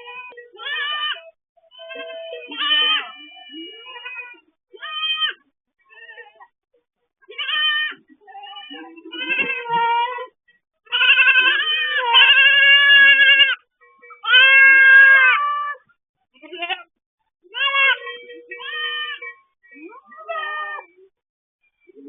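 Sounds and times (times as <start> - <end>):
goats bleating: 0.0 - 6.4, 7.2 - 10.3, 10.9 - 13.6, 14.2 - 15.8, 16.4 - 16.9, 17.5 - 19.4.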